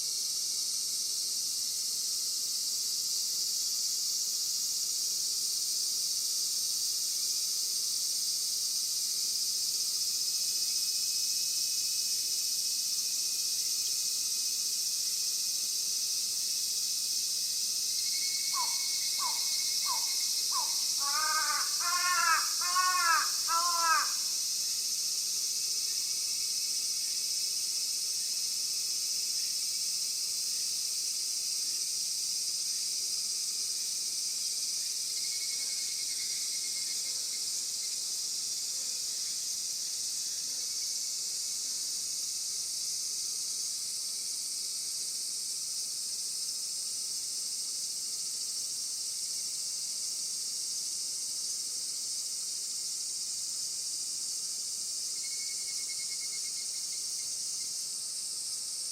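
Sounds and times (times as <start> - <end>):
high-pitched insect chorus: 0.0 - 58.9
faint bird chirps: 18.1 - 24.0.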